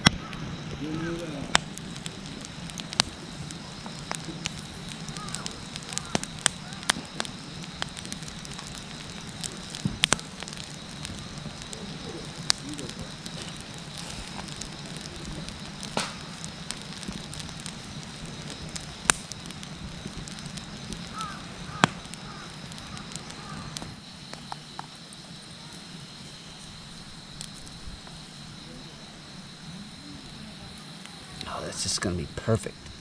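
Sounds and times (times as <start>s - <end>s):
fire crackling and popping: 0.0s - 33.0s.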